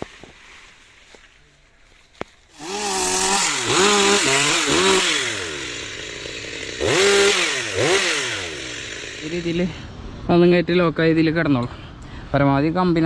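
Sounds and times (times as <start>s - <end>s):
chainsaw revving: 2.5s - 9.8s.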